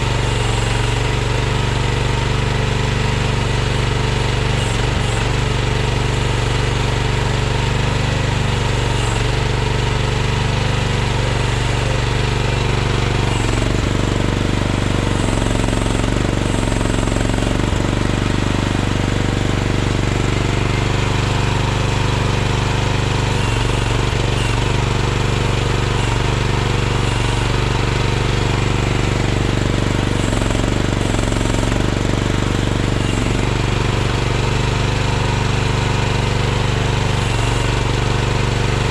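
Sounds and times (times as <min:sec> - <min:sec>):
small excavator engine running: 0:00.0 - 0:38.9.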